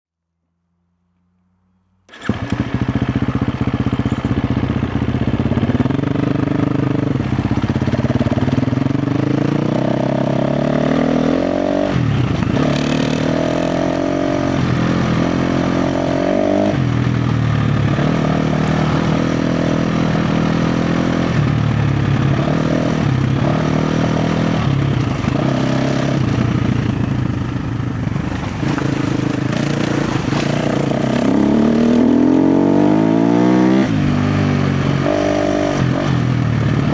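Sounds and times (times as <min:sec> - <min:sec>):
dirt bike engine revving: 0:02.1 - 0:36.9.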